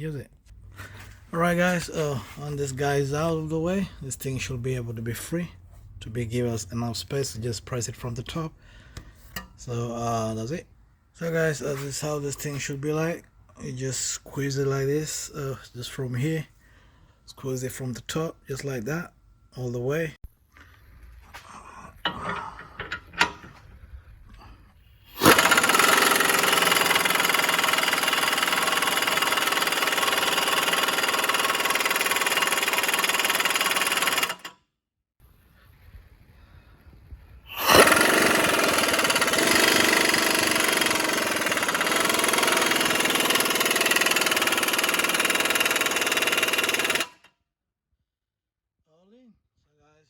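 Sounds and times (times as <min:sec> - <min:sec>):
impact wrench hammering: 0:25.2 - 0:34.5, 0:37.5 - 0:47.3.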